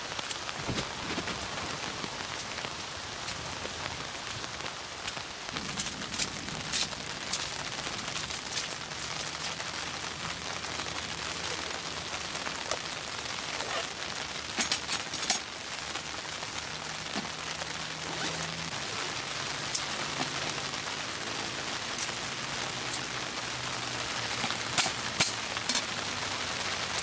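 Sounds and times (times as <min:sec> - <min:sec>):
sharp raindrop hits: 0:00.0 - 0:27.0
steady rain falling: 0:00.0 - 0:27.0.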